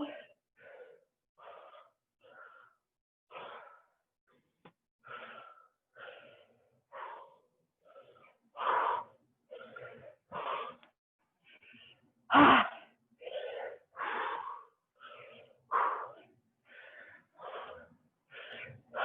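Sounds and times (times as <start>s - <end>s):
woman breathing hard: 5.0s - 19.0s.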